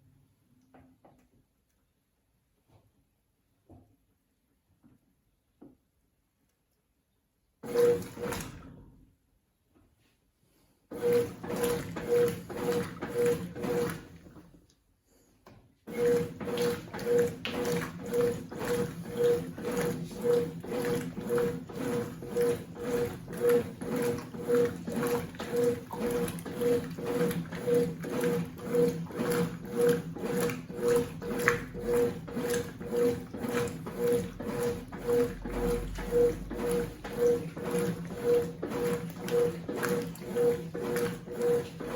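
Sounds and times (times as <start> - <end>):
washing machine agitating: 7.6 - 8.9, 10.9 - 14.6, 15.8 - 41.9.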